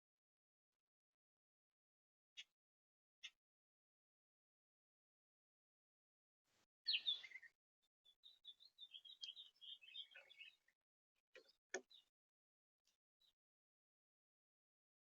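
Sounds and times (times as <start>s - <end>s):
songbird calling and twittering: 6.9s - 12.1s.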